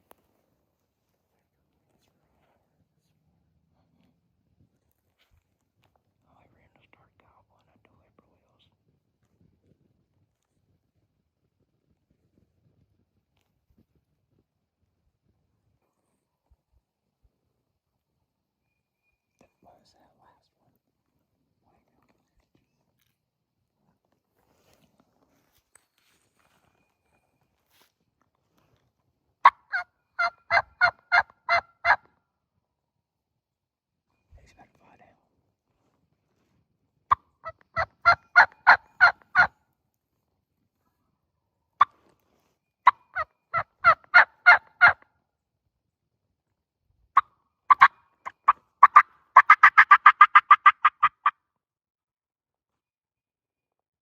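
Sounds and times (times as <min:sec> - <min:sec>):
turkey yelps: 0:29.4 - 0:32.0, 0:37.4 - 0:39.5, 0:42.8 - 0:45.0, 0:47.7 - 0:51.3.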